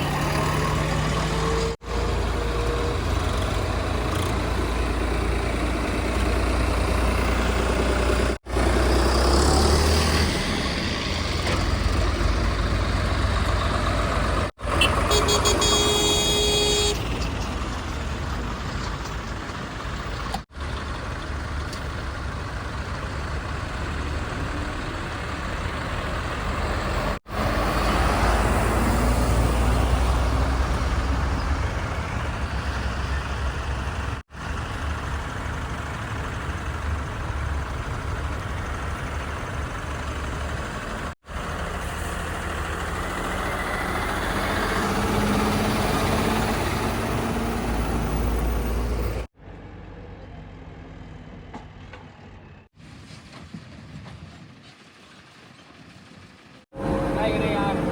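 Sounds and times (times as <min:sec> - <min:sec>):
engine revving: 0:00.0 - 0:16.9, 0:24.9 - 0:34.2, 0:41.3 - 0:49.3
heavy diesel engines under load: 0:00.0 - 0:57.9.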